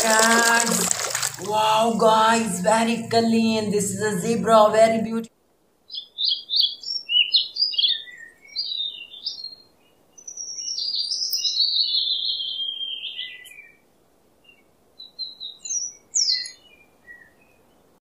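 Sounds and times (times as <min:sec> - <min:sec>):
songbird singing: 0:05.9 - 0:18.0.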